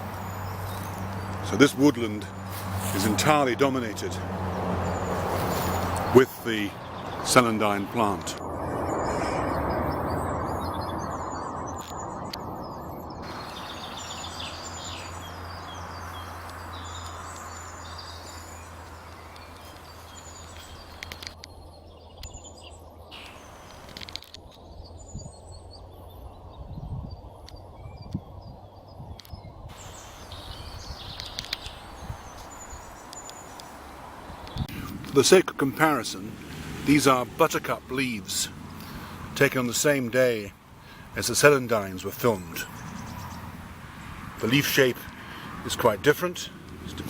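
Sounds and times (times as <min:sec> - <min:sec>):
background hiss: 0:00.0 - 0:04.2, 0:13.3 - 0:21.3, 0:23.2 - 0:24.2, 0:29.7 - 0:44.9
small birds chirping: 0:00.0 - 0:47.0
low hum: 0:06.8 - 0:20.4.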